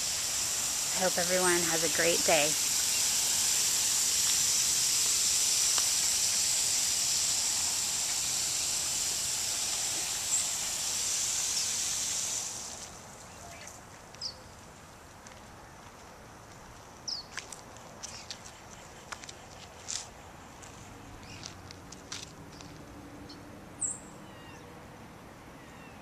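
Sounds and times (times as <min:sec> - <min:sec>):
high-pitched insect chorus: 0:00.0 - 0:13.6.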